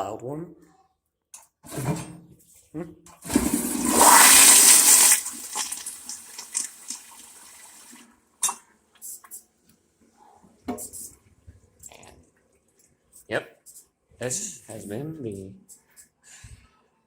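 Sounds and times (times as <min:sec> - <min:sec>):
toilet flushing: 0:03.2 - 0:08.0.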